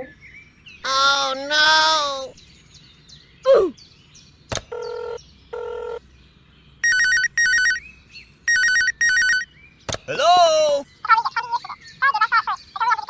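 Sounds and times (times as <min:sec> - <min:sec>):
electronic telephone ringing: 0:04.6 - 0:06.0, 0:06.8 - 0:07.8, 0:08.5 - 0:09.5.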